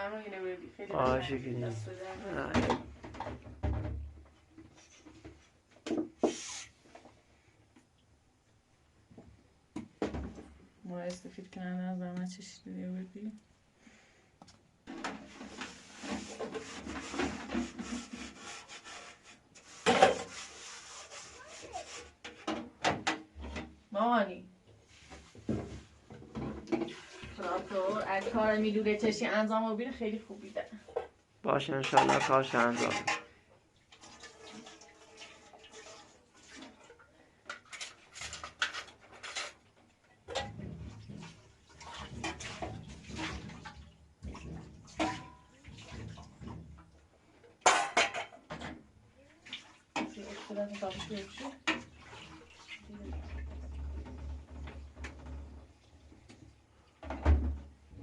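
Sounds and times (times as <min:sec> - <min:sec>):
scraping strokes on wood: 0:15.3 - 0:22.5
pots and dishes clattering: 0:19.8 - 0:20.4, 0:25.4 - 0:28.4, 0:30.9 - 0:33.4, 0:34.0 - 0:48.9, 0:49.9 - 0:52.4.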